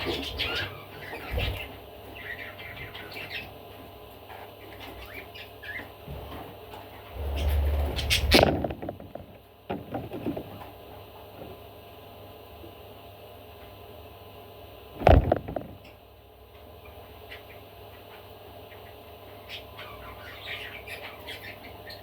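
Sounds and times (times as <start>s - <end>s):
sharp knocks: 15.0s - 15.9s.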